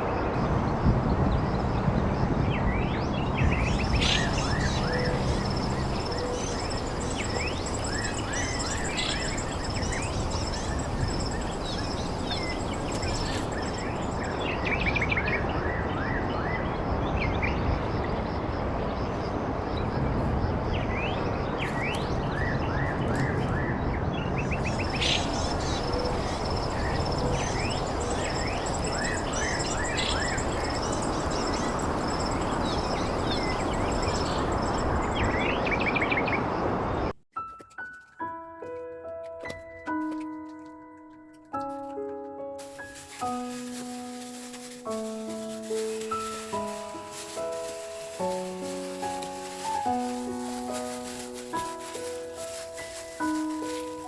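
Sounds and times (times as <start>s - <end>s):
birds chirping: 0.0s - 37.2s, 38.6s - 54.0s
steady rushing noise: 42.6s - 54.0s.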